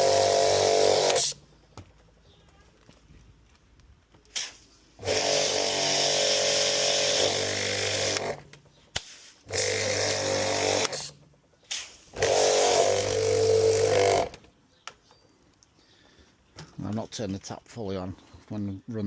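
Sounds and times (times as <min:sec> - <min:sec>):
pressure washer running: 0:00.0 - 0:01.5, 0:04.4 - 0:14.4
water spray hissing: 0:04.3 - 0:04.8, 0:11.7 - 0:12.2.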